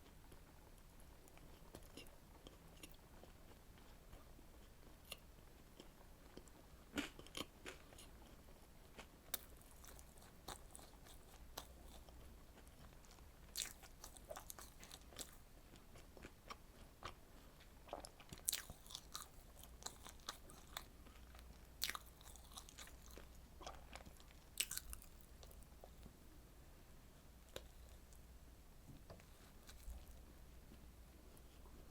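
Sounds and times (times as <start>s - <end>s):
biting and chewing: 9.0s - 15.4s, 17.9s - 26.0s.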